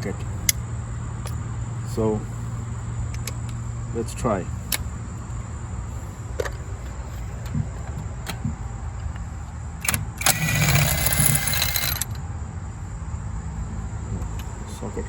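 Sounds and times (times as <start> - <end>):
socket wrench metal clicks: 3.1 - 3.6, 9.8 - 12.2
wrench rasping metal noise: 9.8 - 12.2.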